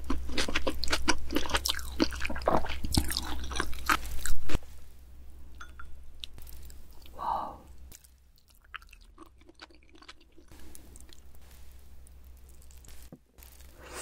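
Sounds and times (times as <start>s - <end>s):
crunchy chewing and biting: 0.0s - 4.6s.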